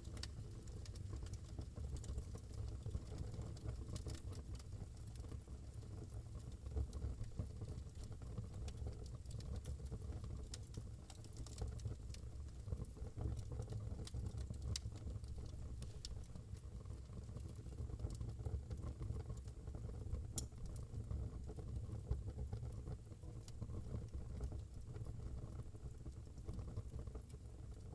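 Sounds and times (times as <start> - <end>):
wood fire crackling: 0.0 - 21.7.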